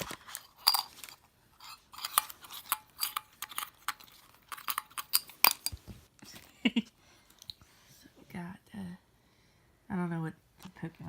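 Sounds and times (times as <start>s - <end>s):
foil packs crinkling: 0.0s - 1.2s
metal tin clicking and clinking: 0.3s - 5.8s.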